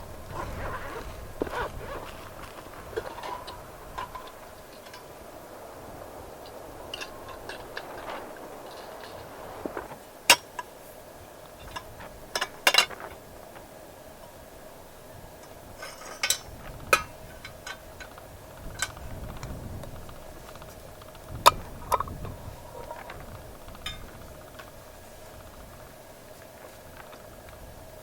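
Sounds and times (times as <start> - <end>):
faint background hum: 0.0 - 28.0.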